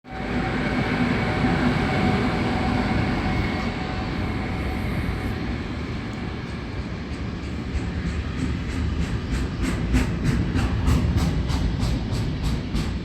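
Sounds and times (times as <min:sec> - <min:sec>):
freight train passing: 0:00.0 - 0:13.0.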